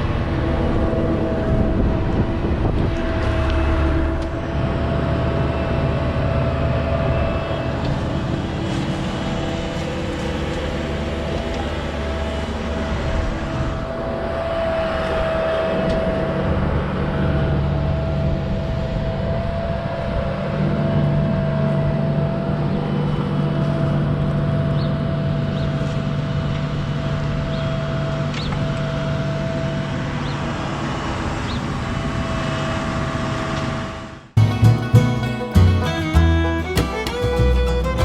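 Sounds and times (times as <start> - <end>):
excavator diesel engine running: 0.0 - 14.2, 34.4 - 38.0.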